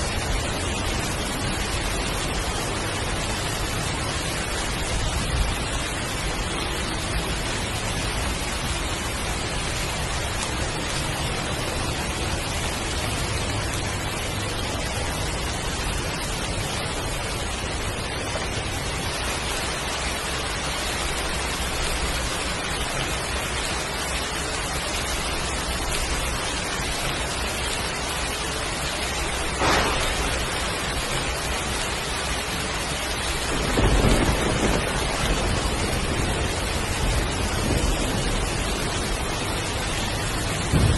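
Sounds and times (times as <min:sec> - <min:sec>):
heavy rain falling: 0:00.0 - 0:40.9
low rumble of thunder: 0:29.3 - 0:40.9
sharp crack: 0:29.5 - 0:31.4.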